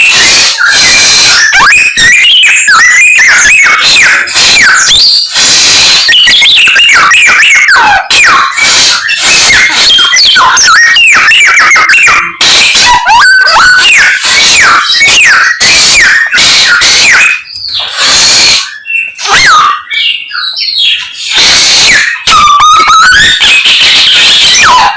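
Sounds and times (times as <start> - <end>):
songbird singing: 16.4 - 23.0.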